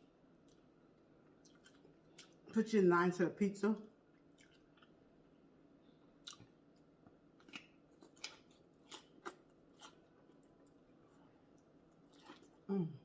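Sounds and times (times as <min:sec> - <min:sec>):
chewing crunchy food: 0:00.4 - 0:02.5, 0:04.1 - 0:05.0, 0:06.2 - 0:12.7.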